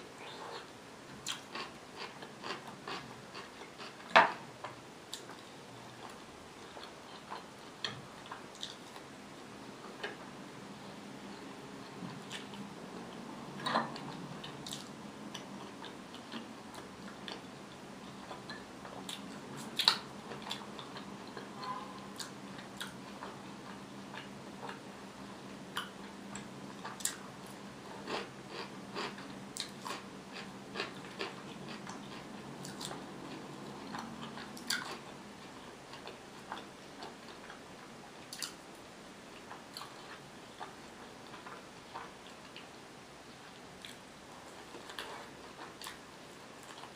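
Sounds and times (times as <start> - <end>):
faint low hum: 0.0 - 46.9
close chewing and crunching: 0.2 - 4.4, 25.8 - 37.6, 39.4 - 42.7, 43.8 - 46.0.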